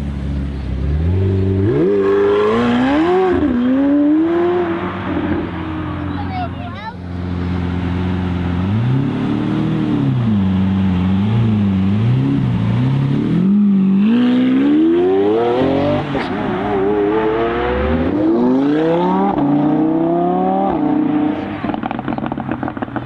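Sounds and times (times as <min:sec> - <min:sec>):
sports car engine revving: 0:00.2 - 0:23.0
exhaust pops crackling: 0:21.4 - 0:23.0.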